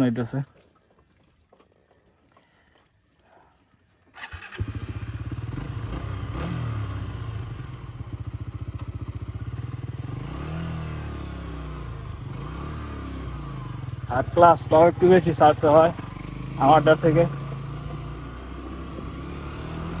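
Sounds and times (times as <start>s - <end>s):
motorcycle engine revving: 4.2s - 20.0s.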